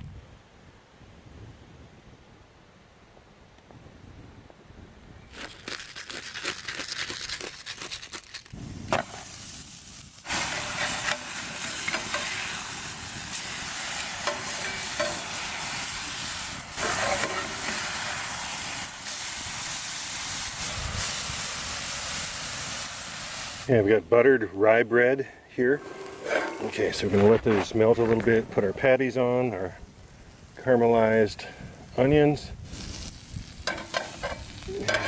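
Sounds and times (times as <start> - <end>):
food sizzling in a skillet: 8.7 - 23.7, 25.8 - 27.1, 32.6 - 35.0.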